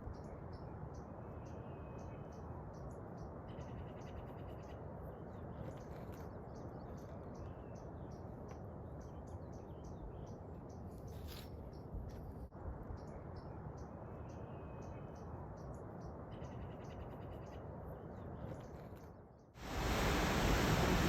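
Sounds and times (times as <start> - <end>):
steady rushing noise: 19.6 - 21.0.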